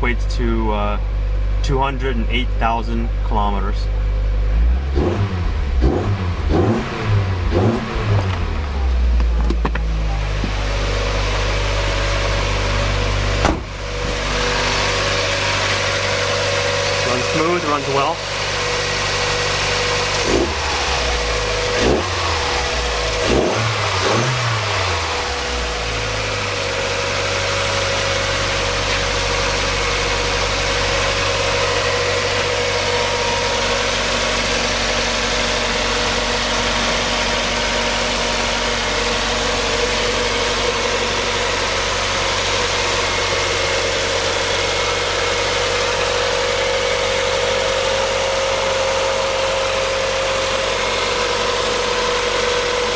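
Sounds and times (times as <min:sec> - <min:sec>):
car engine revving and idling: 0:00.0 - 0:52.9.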